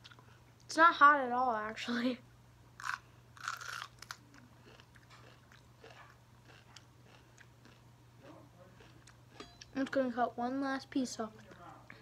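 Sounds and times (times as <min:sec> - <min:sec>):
chewing with faint clicks: 0:00.0 - 0:00.7, 0:02.9 - 0:07.8, 0:08.8 - 0:10.0
crunch of biting pepper: 0:02.8 - 0:07.8.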